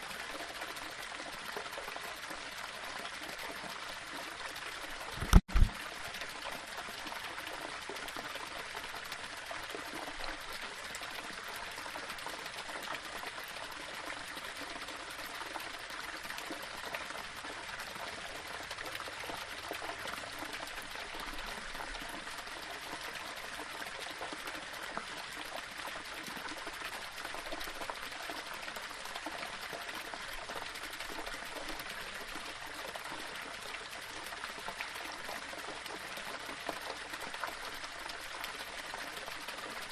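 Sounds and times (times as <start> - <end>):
waterfall splashing over rocks: 4.9 - 7.7, 18.3 - 39.9.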